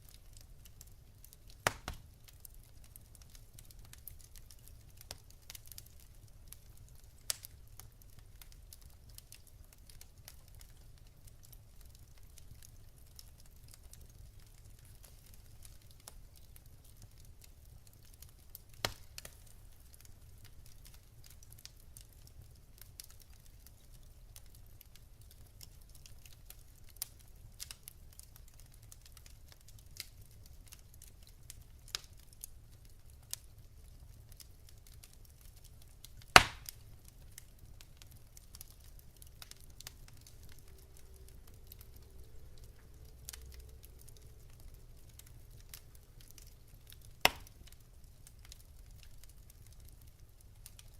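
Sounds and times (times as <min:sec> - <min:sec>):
wood fire crackling: 0:00.0 - 0:50.9
low steady rumble: 0:39.8 - 0:46.2.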